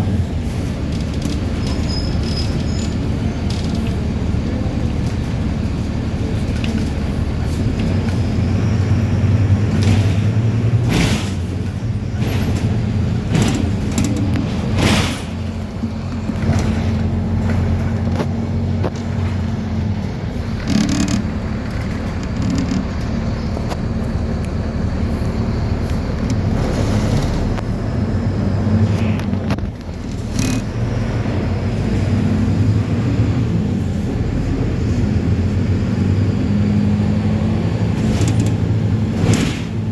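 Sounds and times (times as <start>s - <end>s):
bus diesel engine droning: 0.0s - 39.9s
sharp knocks and rattles: 9.6s - 19.6s, 20.5s - 23.9s.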